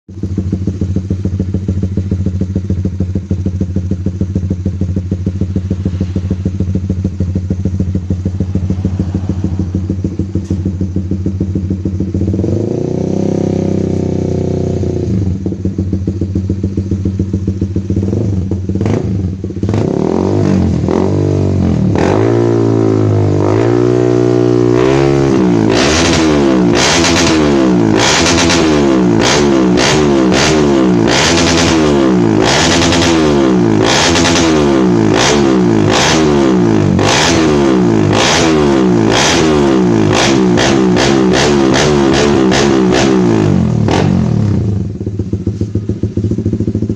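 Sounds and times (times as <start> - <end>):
motorcycle engine idling and revving: 0.0 - 46.9.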